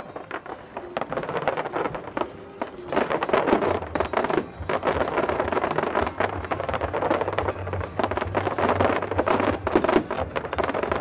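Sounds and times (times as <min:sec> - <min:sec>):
fireworks bangs and crackles: 0:00.0 - 0:11.0
music playing: 0:00.0 - 0:11.0
steady bass: 0:02.9 - 0:11.0.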